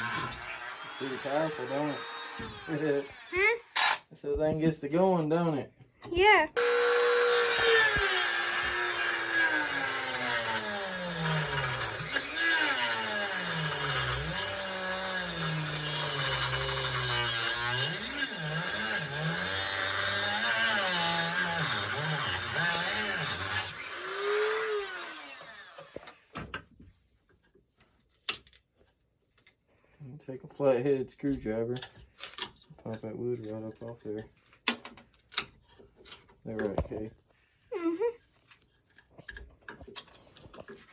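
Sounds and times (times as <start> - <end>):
rotary tool grinding wood: 0.0 - 4.1, 6.6 - 26.3.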